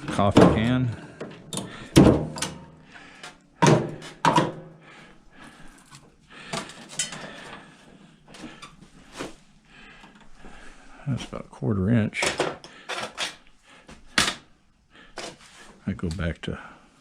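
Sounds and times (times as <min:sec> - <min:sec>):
metal clanks and knocks: 0:00.0 - 0:02.7, 0:03.6 - 0:04.7, 0:06.6 - 0:07.4.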